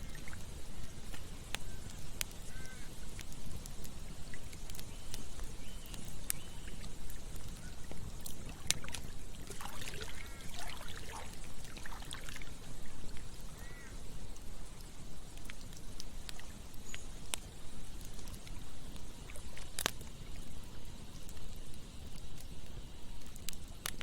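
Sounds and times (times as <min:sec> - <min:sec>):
flowing water: 0:00.0 - 0:04.8, 0:05.4 - 0:24.0
campfire crackling and popping: 0:00.0 - 0:24.0.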